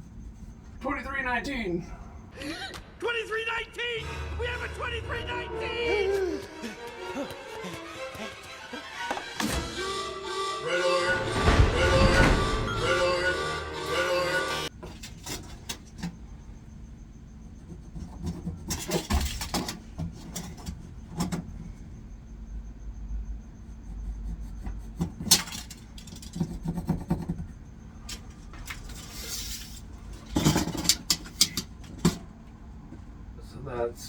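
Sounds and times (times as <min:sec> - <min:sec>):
low rumble: 0:11.1 - 0:13.4
knocks and clicks of handling tools: 0:18.1 - 0:21.7, 0:30.1 - 0:33.1.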